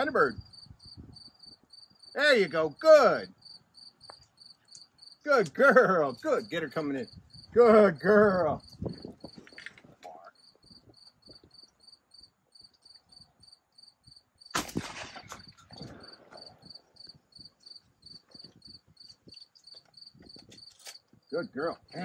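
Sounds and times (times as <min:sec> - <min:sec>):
crickets chirping: 0:00.0 - 0:22.0
shotgun blast: 0:14.6 - 0:16.4.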